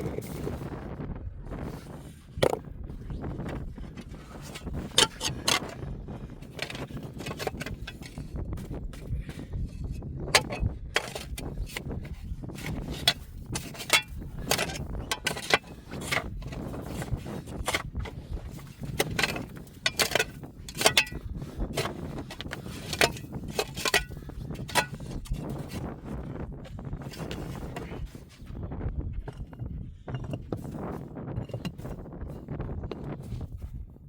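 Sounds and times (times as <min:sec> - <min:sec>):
sharp clicks and knocks: 0:18.8 - 0:21.2, 0:21.8 - 0:25.4.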